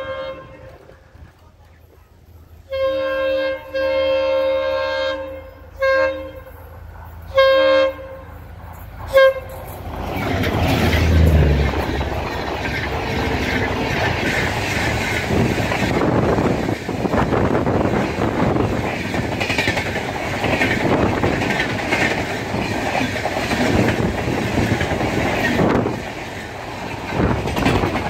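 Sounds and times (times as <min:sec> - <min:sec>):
diesel locomotive horn blasts: 0:00.0 - 0:01.0, 0:02.6 - 0:06.7, 0:07.3 - 0:08.4, 0:09.1 - 0:09.7, 0:11.1 - 0:14.4
locomotive engine rumble: 0:05.3 - 0:28.0
train wheels clattering on rails: 0:08.6 - 0:28.0.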